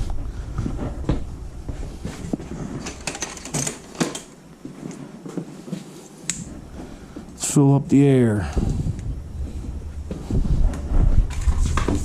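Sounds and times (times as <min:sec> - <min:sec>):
tools clicking and clattering: 0:02.7 - 0:04.4.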